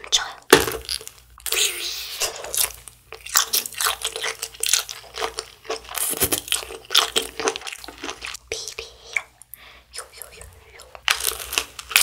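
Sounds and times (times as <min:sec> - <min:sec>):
biting and chewing sausage: 0:00.7 - 0:08.4, 0:11.0 - 0:12.0.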